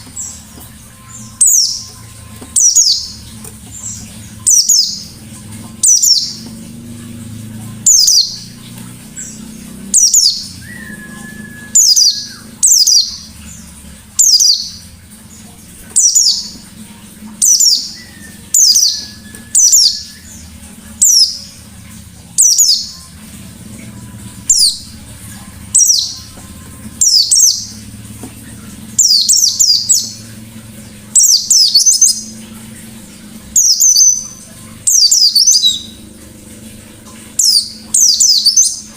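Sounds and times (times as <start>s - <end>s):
bird low steady whistles: 10.5s - 12.4s.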